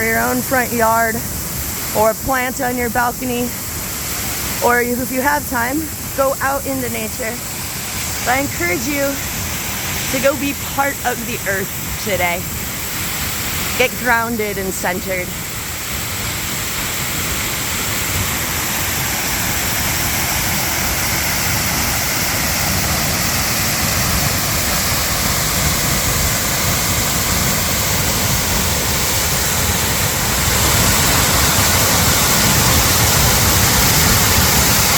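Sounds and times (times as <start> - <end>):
water flowing: 0.0 - 34.9.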